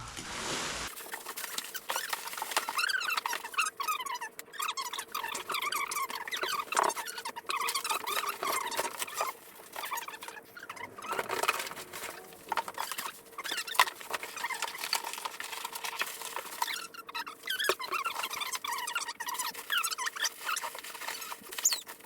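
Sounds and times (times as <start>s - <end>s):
cardboard rustling: 0.0s - 22.0s
bubble wrap crinkling: 0.1s - 22.0s.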